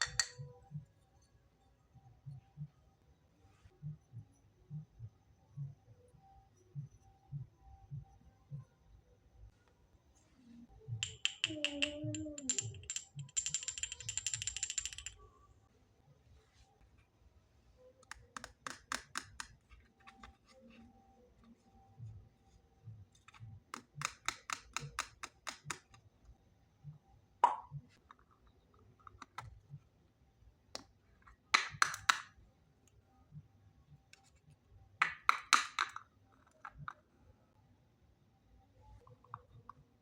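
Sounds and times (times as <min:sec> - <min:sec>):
plastic toy pieces clicking: 0:11.0 - 0:15.2
plastic toy pieces rattling: 0:11.0 - 0:15.2.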